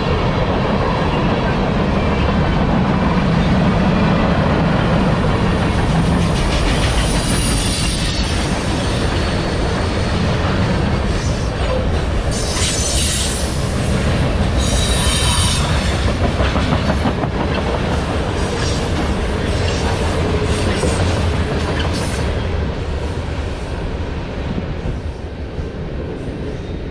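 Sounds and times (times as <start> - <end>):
freight train rumbling on rails: 0.0 - 26.9
wheel squeal: 6.8 - 9.7, 14.6 - 15.9.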